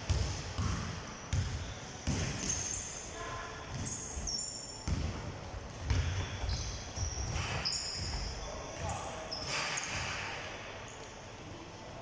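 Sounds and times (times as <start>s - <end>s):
basketballs bouncing on gym floor: 0.0s - 2.8s, 3.7s - 10.3s
sneakers squeaking on court: 0.0s - 11.2s.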